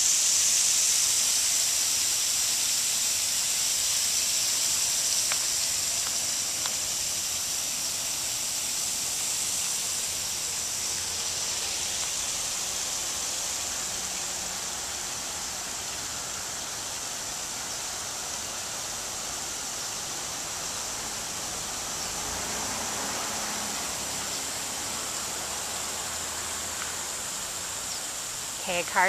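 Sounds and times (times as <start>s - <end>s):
steady outdoor hiss: 0.0s - 29.0s
car driving past: 20.2s - 27.9s.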